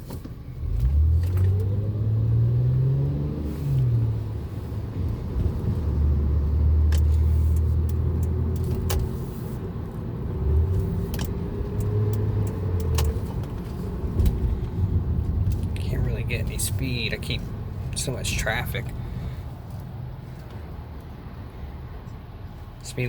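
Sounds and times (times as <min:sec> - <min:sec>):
car engine and road drone: 0:00.0 - 0:23.0.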